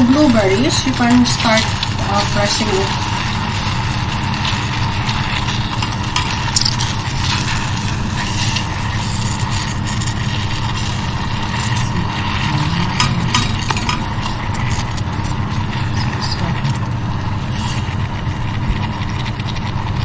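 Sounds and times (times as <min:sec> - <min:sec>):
low mechanical hum: 0:00.0 - 0:20.0
spoon stirring berries in saucepan: 0:00.1 - 0:18.0
spoon scraping pan: 0:05.7 - 0:16.2.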